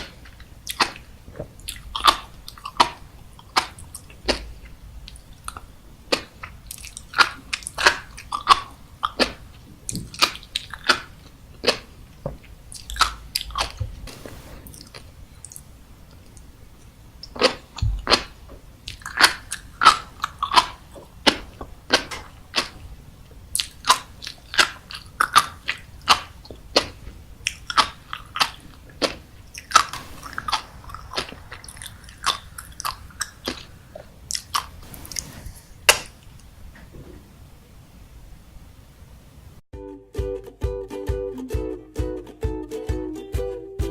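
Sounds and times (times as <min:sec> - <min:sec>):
chewing crunchy food: 0:00.0 - 0:04.5, 0:05.1 - 0:12.0, 0:17.2 - 0:22.8, 0:23.5 - 0:35.3.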